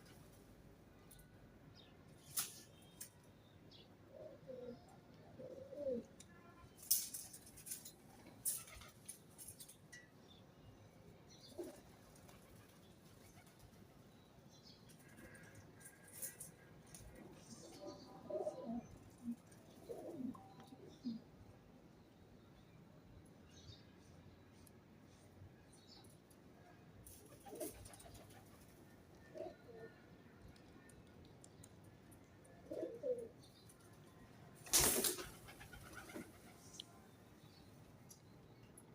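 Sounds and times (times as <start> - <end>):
pigeon cooing: 4.1 - 6.1, 17.8 - 21.2, 32.6 - 33.4.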